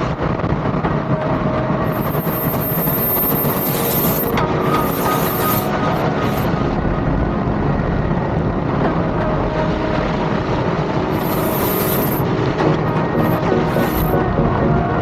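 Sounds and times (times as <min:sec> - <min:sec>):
jet turbine engines running: 0:01.4 - 0:06.7, 0:10.6 - 0:14.2.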